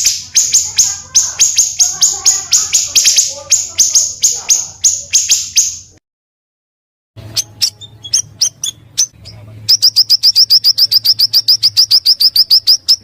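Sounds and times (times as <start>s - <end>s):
songbird harsh chipping: 0.0s - 5.9s
sharp bird chirps: 0.0s - 6.0s, 7.2s - 13.0s.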